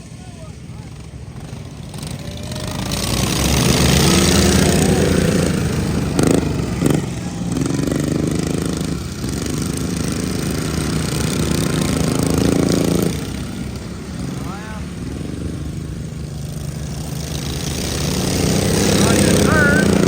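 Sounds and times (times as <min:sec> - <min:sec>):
riding lawn mower engines racing: 0:00.0 - 0:20.0.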